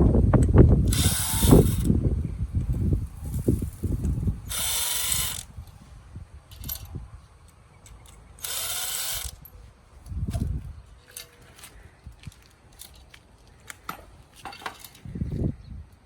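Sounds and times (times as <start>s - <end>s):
power tool spinning bolts: 0.8s - 1.9s, 3.4s - 5.5s, 8.1s - 9.5s
parts clattering: 10.3s - 15.2s.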